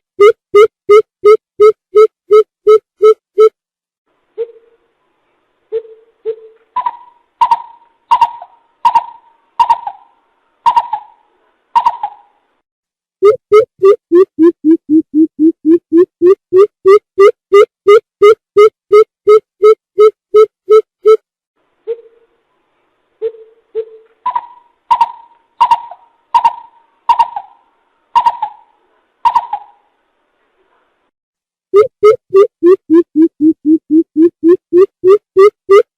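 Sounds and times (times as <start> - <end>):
bird hooting: 23.2 - 27.6.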